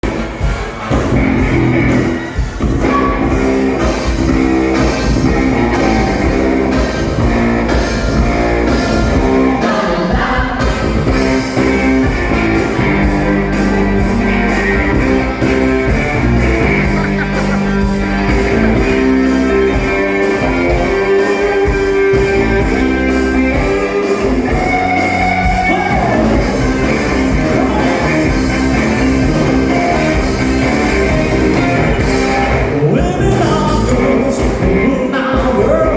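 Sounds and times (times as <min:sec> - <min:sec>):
live rock band playing: 0:00.0 - 0:35.9
person singing: 0:04.7 - 0:11.7, 0:18.5 - 0:35.9.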